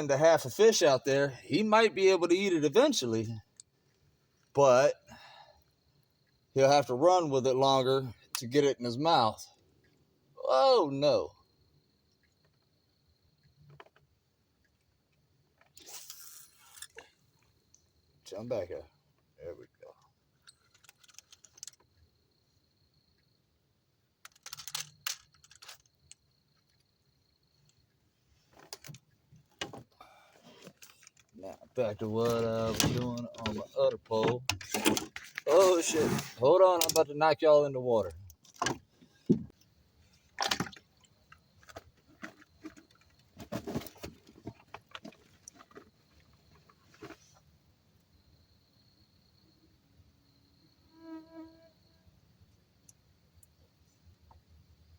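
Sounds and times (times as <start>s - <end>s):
sharp clicks and rattles: 19.9s - 22.0s, 24.2s - 26.8s.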